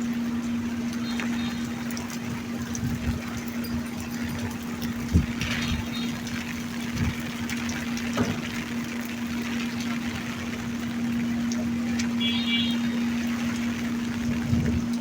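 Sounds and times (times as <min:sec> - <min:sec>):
rain falling: 0:00.0 - 0:15.0
dull knocks: 0:08.1 - 0:08.6.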